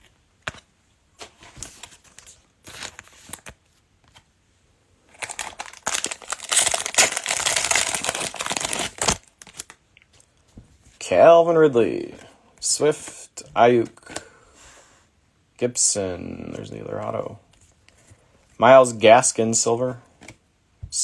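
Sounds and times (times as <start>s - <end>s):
foil wrapper crinkling: 5.1s - 9.8s
wrapper tearing open: 5.1s - 9.8s.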